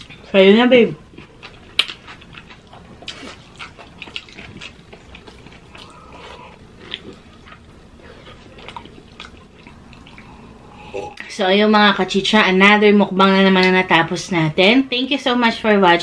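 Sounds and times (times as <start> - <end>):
chewing and wet mouth smacks: 1.1 - 10.3.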